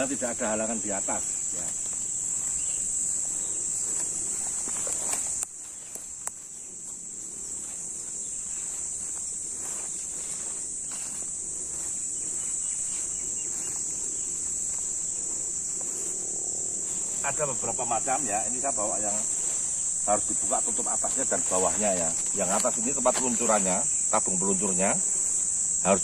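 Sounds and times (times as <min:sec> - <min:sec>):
high-pitched insect chorus: 0:00.0 - 0:26.0
faint clicks and rustles: 0:01.2 - 0:17.4.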